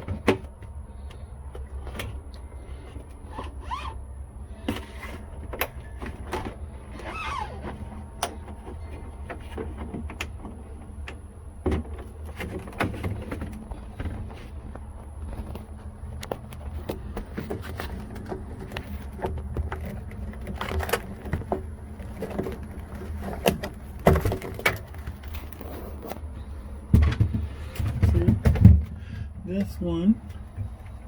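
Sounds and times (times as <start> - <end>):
steady low hum: 0.0 - 31.0
plastic rubbing squeaks: 3.2 - 4.0, 4.6 - 9.9
clicks and knocks of handling: 7.6 - 26.3.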